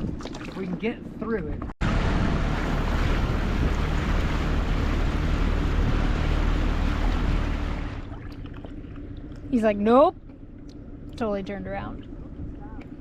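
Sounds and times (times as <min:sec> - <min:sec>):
wind noise on microphone: 0:00.0 - 0:00.5, 0:01.8 - 0:07.8
outboard motor running: 0:00.0 - 0:13.0.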